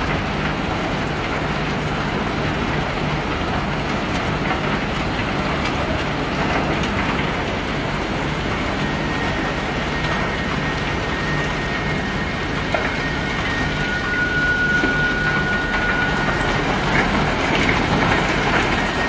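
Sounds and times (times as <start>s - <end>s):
ship machinery running: 0.0s - 19.0s.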